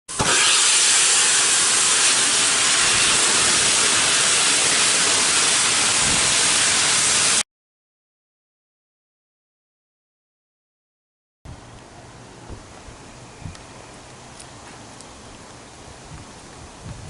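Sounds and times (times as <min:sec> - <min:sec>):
steam hissing from locomotive: 0:00.1 - 0:07.4.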